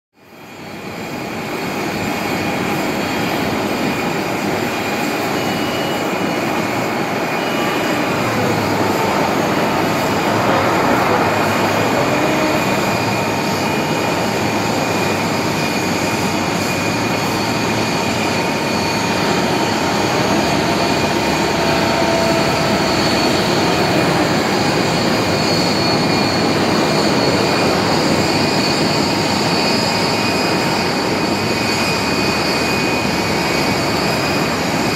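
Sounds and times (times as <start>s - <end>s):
jet engines whining: 0.2s - 34.9s.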